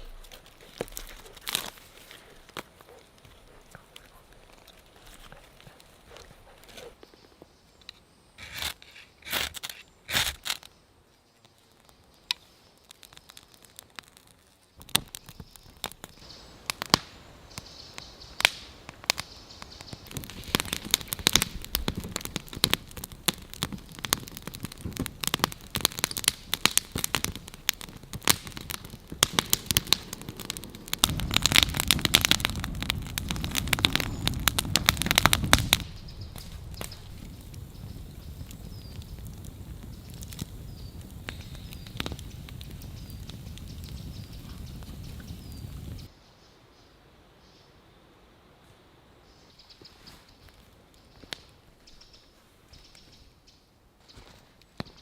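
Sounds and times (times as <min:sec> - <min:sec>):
crackling and snapping: 0:00.0 - 0:10.8, 0:11.4 - 0:46.1
low rumble: 0:29.5 - 0:46.1.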